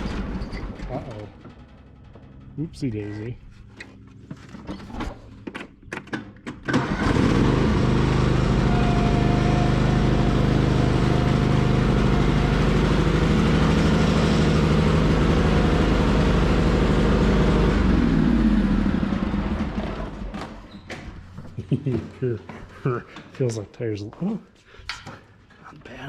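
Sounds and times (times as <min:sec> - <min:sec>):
riding mower engine running: 0:00.0 - 0:04.6, 0:06.3 - 0:20.6.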